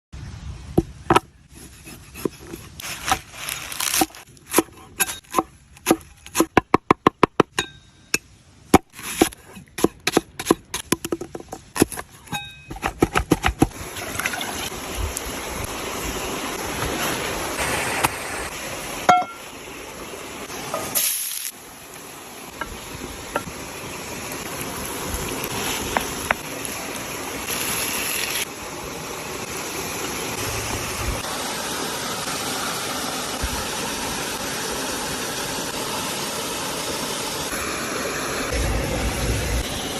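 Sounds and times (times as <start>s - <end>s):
food sizzling hiss: 13.6s - 39.9s.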